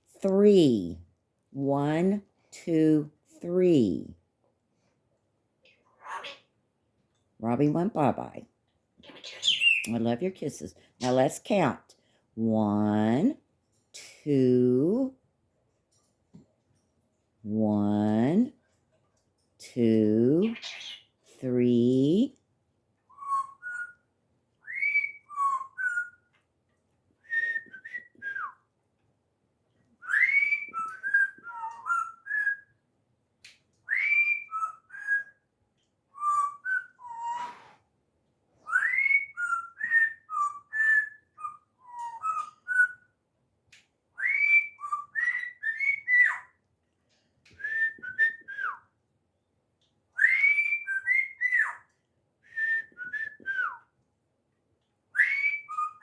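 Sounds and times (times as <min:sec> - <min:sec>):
pet bird whistling a tune: 0:23.1 - 0:24.0, 0:24.6 - 0:26.3, 0:27.2 - 0:28.6, 0:30.0 - 0:32.8, 0:33.8 - 0:35.5, 0:36.1 - 0:37.7, 0:38.6 - 0:43.2, 0:44.2 - 0:46.6, 0:47.5 - 0:48.9, 0:50.2 - 0:53.9, 0:55.1 - 0:56.0.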